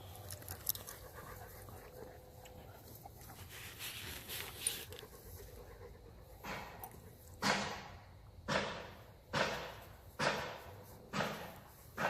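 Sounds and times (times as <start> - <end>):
puppies panting: 0.0 - 7.4
soft scuffling: 2.8 - 5.2.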